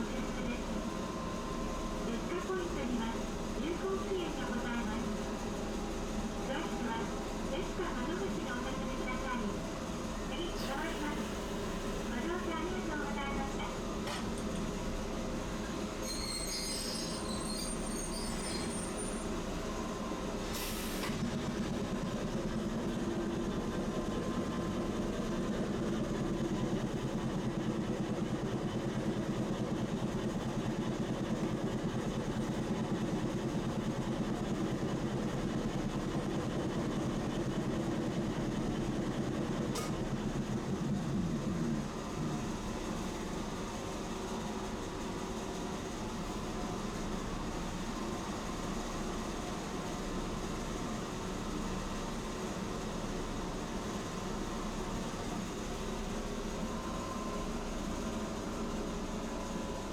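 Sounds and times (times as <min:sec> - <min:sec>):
streetcar rumbling on rails: 0:00.0 - 0:59.9
high squeal: 0:16.0 - 0:19.2.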